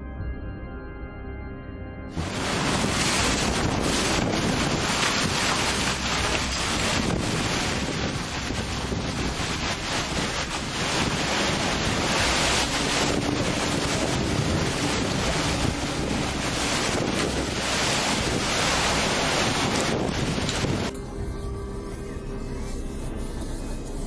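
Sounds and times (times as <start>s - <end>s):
loud steady rushing noise: 2.1s - 21.0s
wind buffeting microphone: 2.2s - 20.9s.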